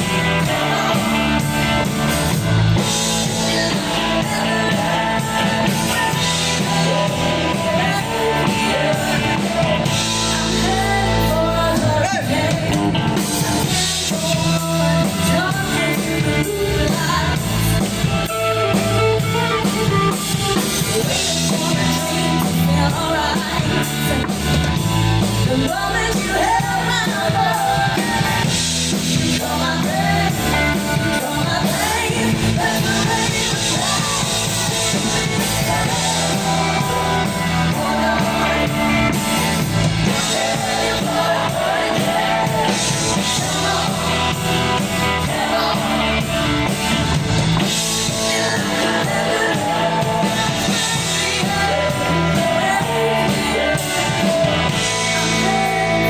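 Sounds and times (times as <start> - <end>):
live rock band playing: 0.0 - 56.0
person singing lead vocal: 0.0 - 56.0.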